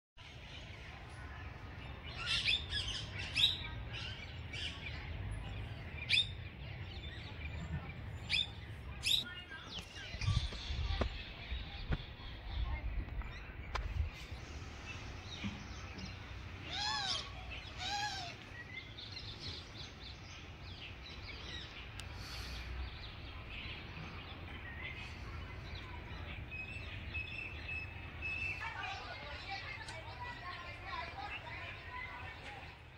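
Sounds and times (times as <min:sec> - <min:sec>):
birds chirping: 0:00.2 - 0:32.9
loud arching bird calls: 0:16.4 - 0:20.2.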